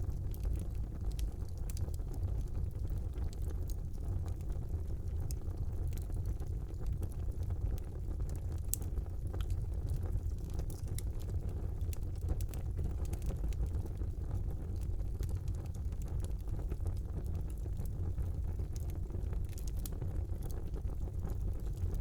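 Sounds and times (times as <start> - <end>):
fire crackling and popping: 0.0 - 22.0
wood fire rumbling: 0.0 - 22.0.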